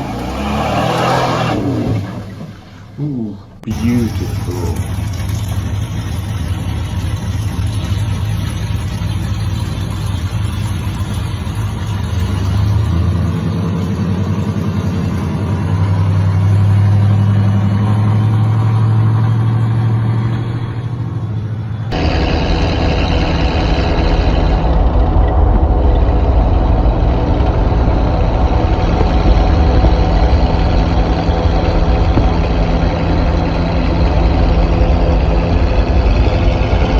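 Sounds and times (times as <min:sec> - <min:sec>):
another engine running: 0:00.0 - 0:36.9
pickup truck engine and exhaust: 0:00.0 - 0:36.9.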